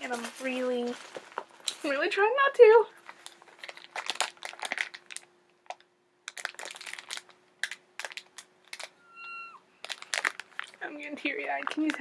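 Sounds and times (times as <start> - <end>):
packaging crinkling and rustling: 0.0 - 2.2, 3.0 - 9.0, 9.8 - 12.0.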